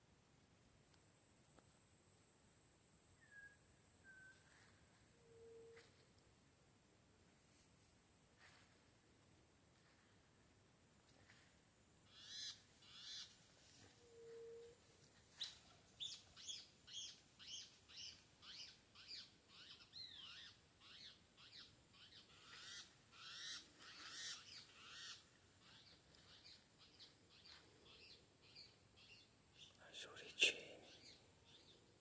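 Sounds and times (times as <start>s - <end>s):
faint bird chirps: 3.1s - 6.0s, 12.0s - 32.0s.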